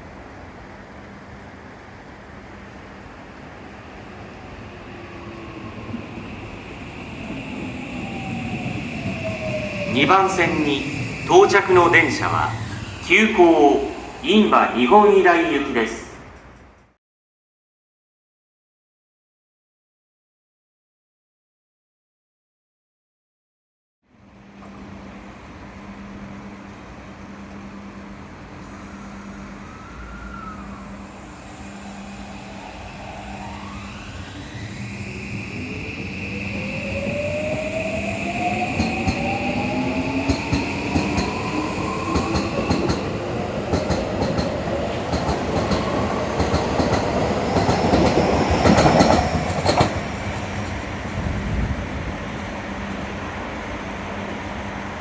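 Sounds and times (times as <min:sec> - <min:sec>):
train wheels clattering: 0:42.1 - 0:50.9.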